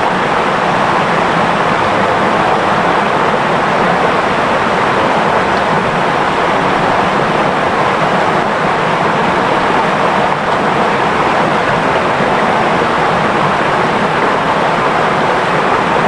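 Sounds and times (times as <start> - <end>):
river flowing and babbling: 0.0 - 16.0.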